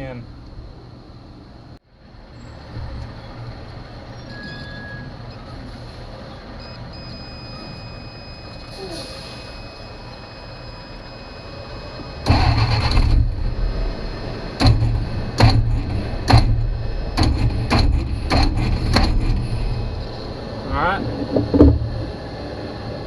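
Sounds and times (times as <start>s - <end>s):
engine cranking and sputtering: 12.2s - 22.2s.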